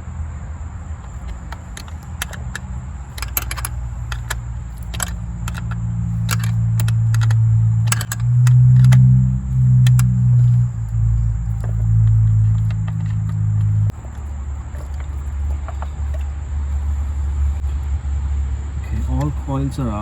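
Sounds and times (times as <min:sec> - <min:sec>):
metallic clicks of hand tools: 0:01.0 - 0:14.0.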